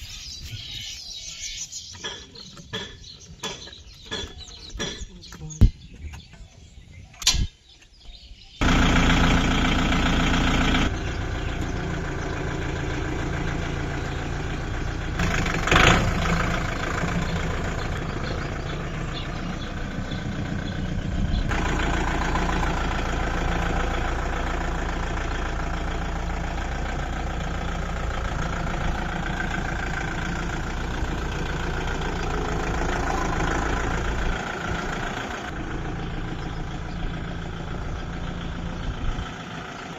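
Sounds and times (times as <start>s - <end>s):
tractor diesel engine running: 8.1s - 39.9s.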